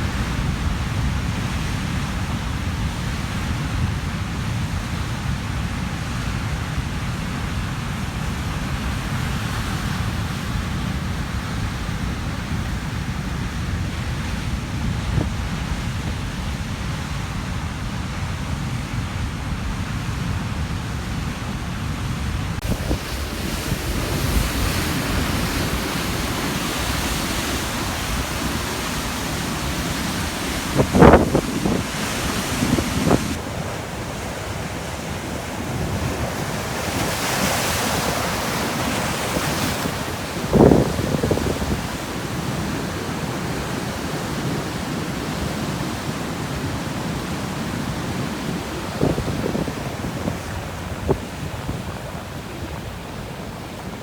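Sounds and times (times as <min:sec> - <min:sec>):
wind buffeting the microphone: 0:00.0 - 0:54.0
ocean waves crashing on rocks: 0:22.2 - 0:54.0.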